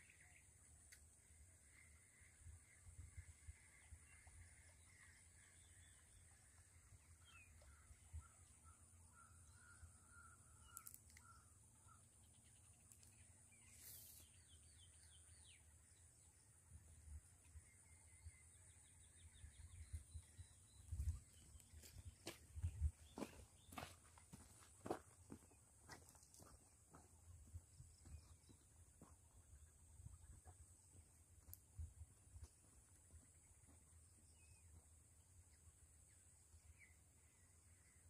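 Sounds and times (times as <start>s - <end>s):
wind rumble on microphone: 19.3s - 23.1s.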